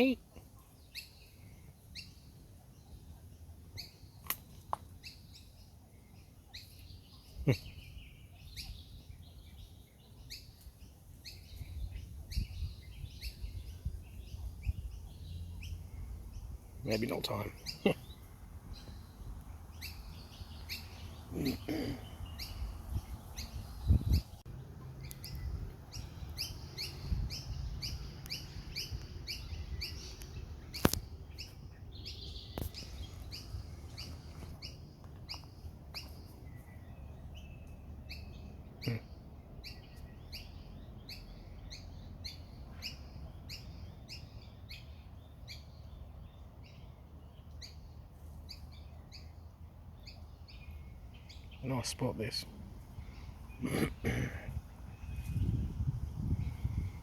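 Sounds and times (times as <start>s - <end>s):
small birds chirping: 0.0s - 57.0s
sharp click: 4.2s - 4.8s.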